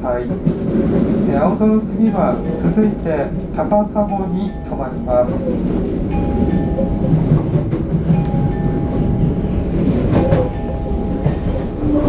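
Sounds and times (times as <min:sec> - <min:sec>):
wheels rumbling on track: 0:00.0 - 0:12.0
sharp rail clicks: 0:00.4 - 0:08.9.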